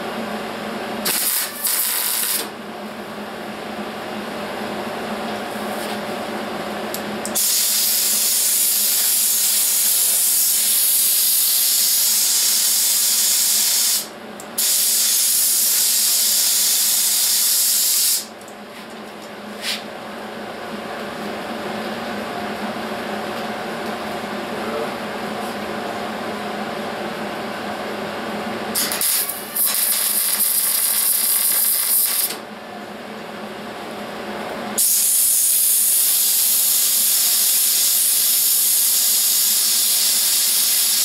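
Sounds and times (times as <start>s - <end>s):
welding hiss: 1.0s - 2.5s, 7.3s - 18.3s, 28.8s - 32.4s, 34.8s - 41.0s.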